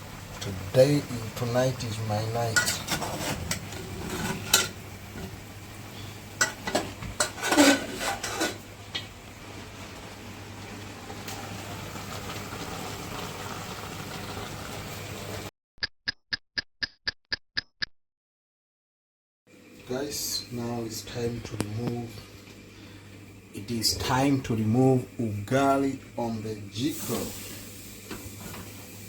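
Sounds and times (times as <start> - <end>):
utensil scraping a pot: 2.5 - 5.4, 6.4 - 8.7.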